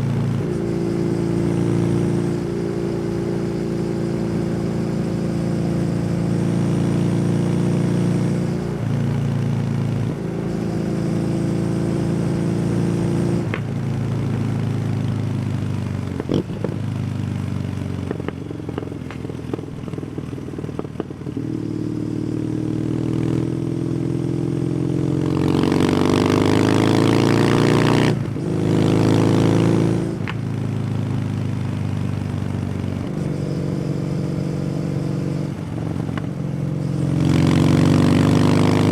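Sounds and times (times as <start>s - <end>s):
motorcycle engine: 0.0s - 38.9s
exhaust crackles and pops: 18.0s - 21.1s, 30.2s - 30.5s.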